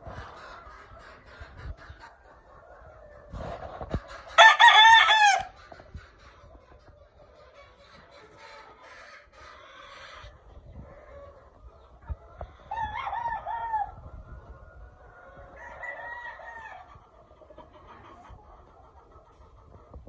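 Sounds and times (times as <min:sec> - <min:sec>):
roosters crowing: 0:04.3 - 0:05.7, 0:12.6 - 0:14.0, 0:15.2 - 0:17.0.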